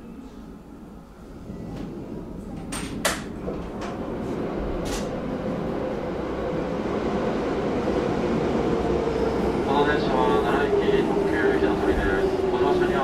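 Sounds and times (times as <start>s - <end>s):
electric train rumbling: 0.0s - 13.0s
sharp clicks and knocks: 2.6s - 4.0s.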